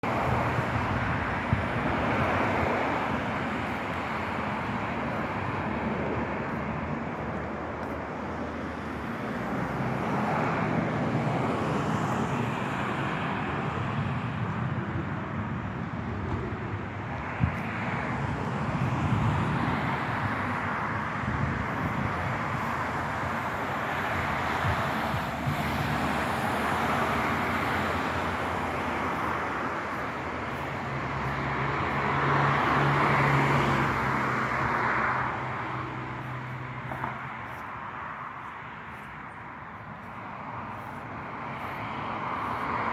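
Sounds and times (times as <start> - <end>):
piston aircraft engine running: 14.8 - 37.8.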